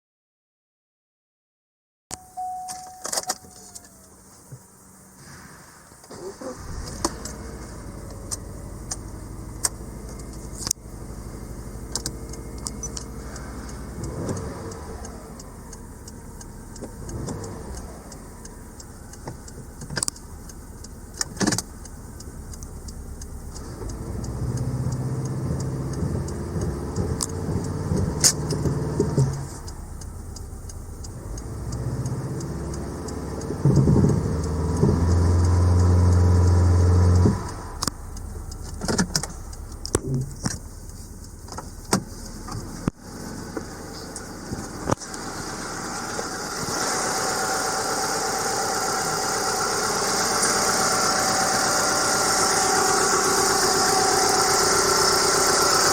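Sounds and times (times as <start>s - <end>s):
car engine idling and revving: 2.2s - 55.9s
sharp clicks: 11.8s - 45.2s.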